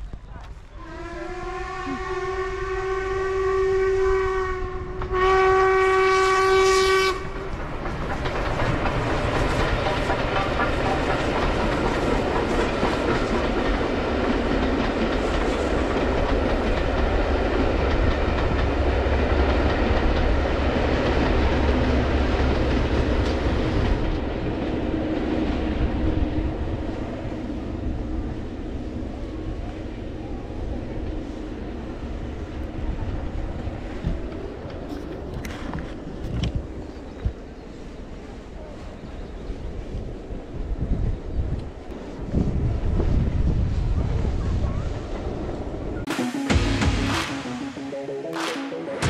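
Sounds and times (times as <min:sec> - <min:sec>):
steam train whistle: 0:00.7 - 0:07.4
train rumbling and clattering: 0:03.8 - 0:46.1.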